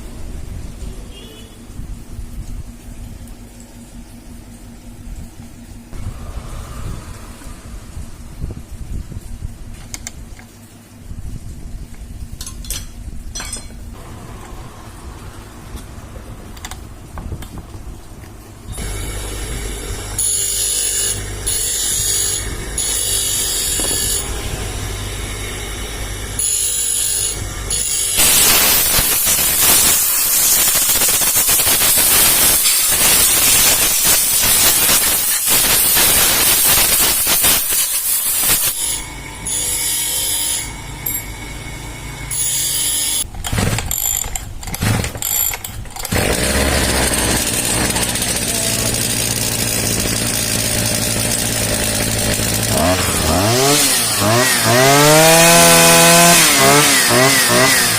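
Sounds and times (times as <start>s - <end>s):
loud power tool running: 18.7s - 57.9s
mechanical clicking: 43.2s - 46.7s.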